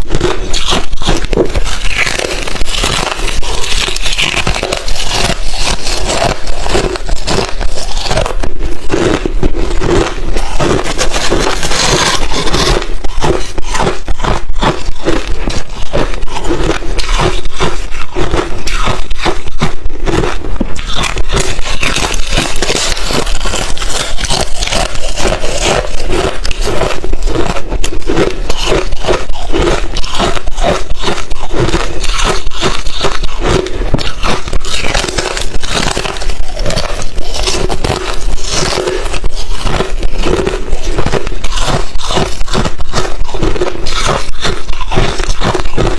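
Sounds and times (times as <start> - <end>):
ice chips being chewed: 0.0 - 45.9.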